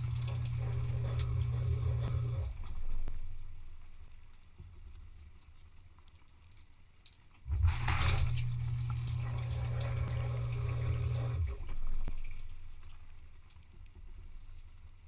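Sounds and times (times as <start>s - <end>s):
dishwasher pump with rushing water: 0.0s - 5.2s, 7.4s - 15.0s
low hum: 7.5s - 13.4s.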